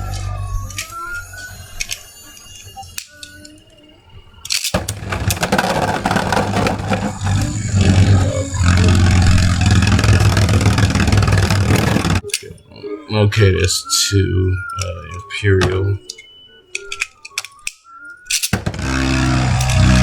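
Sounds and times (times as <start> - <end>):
spinning tops scraping whir: 4.4 - 12.6, 14.6 - 20.0.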